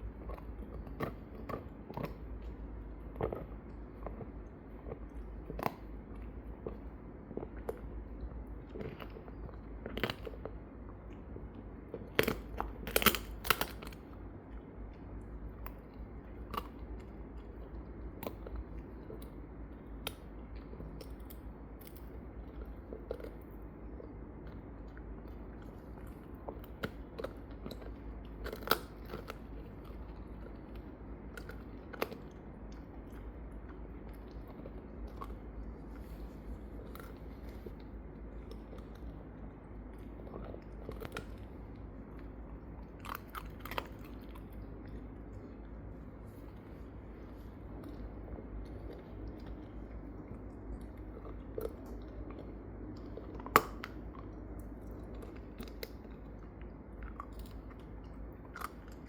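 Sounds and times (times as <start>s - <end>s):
steady low hum: 0.0s - 59.0s
dog crunching a bone: 0.1s - 2.6s, 12.0s - 14.0s, 25.8s - 32.4s.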